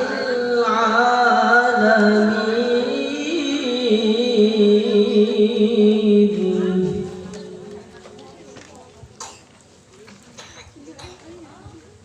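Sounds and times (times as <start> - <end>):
melodic quran recitation: 0.0 - 8.1.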